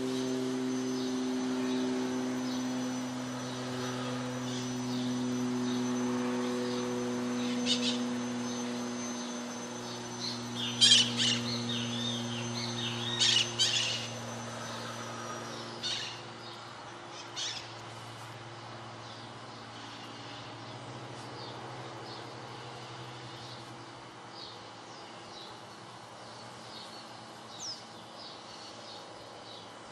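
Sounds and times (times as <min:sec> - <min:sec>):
high-pitched whine: 0:00.0 - 0:23.7
low hum: 0:00.0 - 0:29.4.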